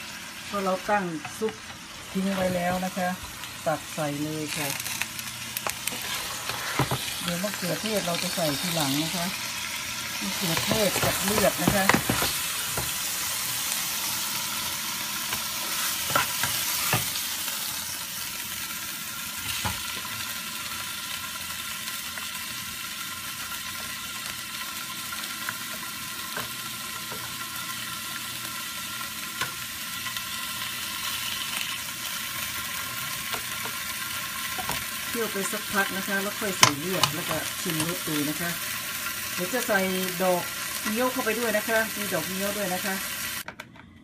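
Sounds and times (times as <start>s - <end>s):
meat sizzling in a wok: 0.0s - 43.5s.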